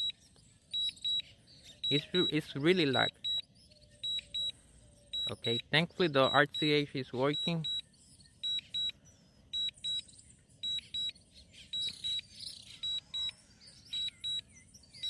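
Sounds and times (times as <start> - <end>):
short high-pitched beeps: 0.8 - 1.2, 1.8 - 4.5, 5.2 - 7.8, 8.4 - 13.3, 13.9 - 14.5.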